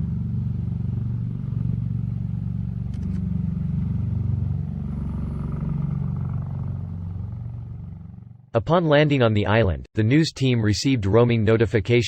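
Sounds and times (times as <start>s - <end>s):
low engine drone: 0.0s - 8.5s.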